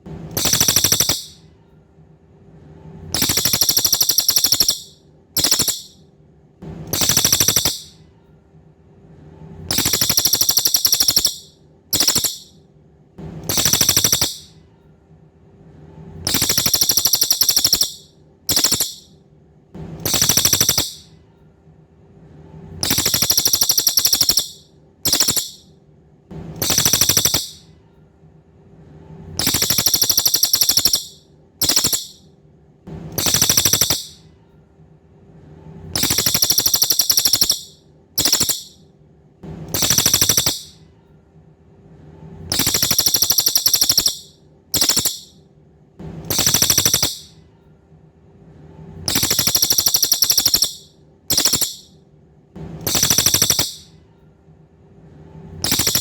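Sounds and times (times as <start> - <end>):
songbird buzzy trill: 0.3 - 1.4, 3.1 - 6.0, 6.9 - 8.0, 9.7 - 12.6, 13.5 - 14.6, 16.3 - 19.1, 20.0 - 21.1, 22.8 - 25.7, 26.6 - 27.7, 29.4 - 32.2, 33.2 - 34.2, 36.0 - 38.8, 39.7 - 40.8, 42.5 - 45.4, 46.3 - 47.4, 49.1 - 51.9, 52.8 - 53.9, 55.6 - 56.0.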